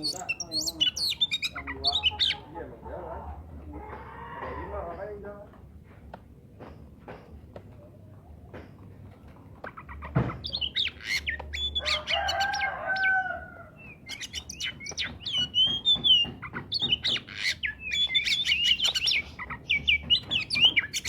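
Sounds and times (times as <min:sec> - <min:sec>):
songbird singing whistled notes: 0:00.0 - 0:02.4, 0:10.4 - 0:13.1, 0:13.8 - 0:21.0.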